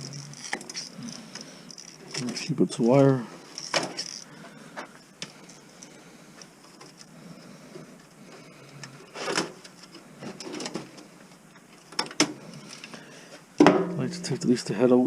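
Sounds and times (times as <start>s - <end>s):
plastic and metal parts rattling: 0.0s - 2.5s, 3.4s - 5.6s, 9.1s - 11.0s.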